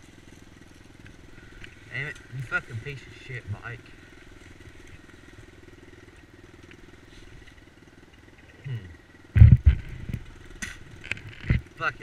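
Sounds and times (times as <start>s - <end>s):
dirt bike engine idling: 0.0s - 12.0s
loud low thump: 9.3s - 10.8s.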